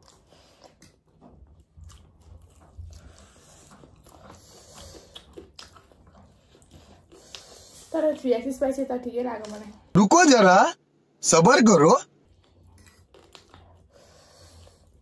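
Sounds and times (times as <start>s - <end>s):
people chewing and biting food: 0.0s - 8.0s, 11.4s - 15.0s.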